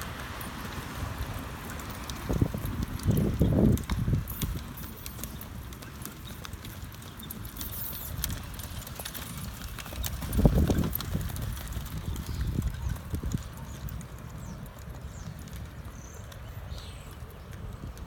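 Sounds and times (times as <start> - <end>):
horse hooves thudding on ground: 0.0 - 18.0
wind rumble on microphone: 0.0 - 18.0.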